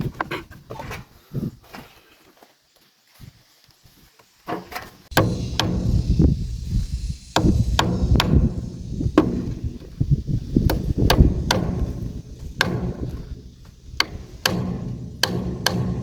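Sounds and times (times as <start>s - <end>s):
tool striking wood: 5.1s - 10.0s, 10.6s - 16.0s.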